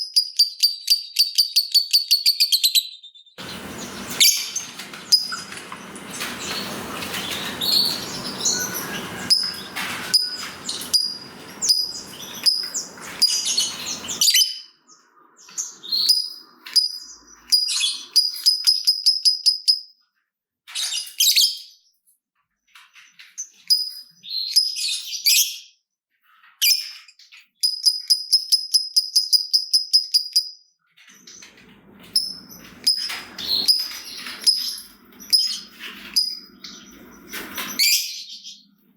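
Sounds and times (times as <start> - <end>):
lovebird chirping and trilling: 0.0 - 14.9, 15.5 - 19.9, 32.1 - 38.7
rustling with clicks: 3.4 - 14.2, 31.0 - 37.8.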